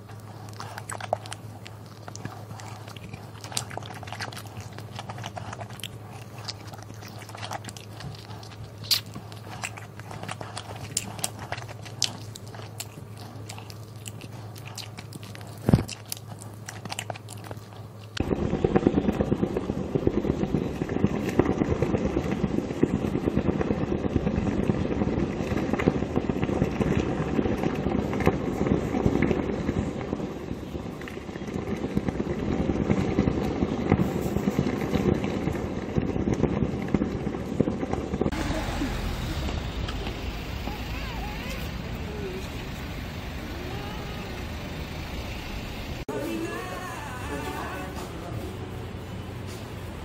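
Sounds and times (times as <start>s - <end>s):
chewing and biting: 0.0s - 18.3s
heavy rain downpour: 38.3s - 46.0s.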